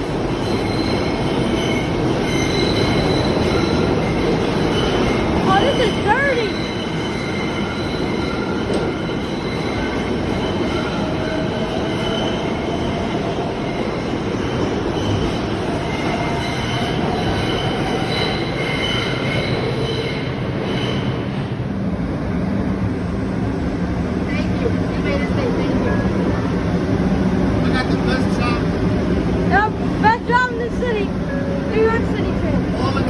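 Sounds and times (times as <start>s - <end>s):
subway train wheels rumbling: 0.0s - 33.0s.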